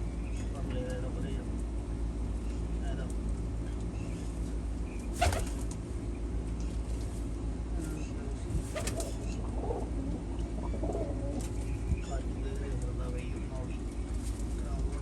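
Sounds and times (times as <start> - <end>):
steady low hum: 0.0 - 15.0
pigeons flapping wings: 5.2 - 5.8, 8.6 - 9.2.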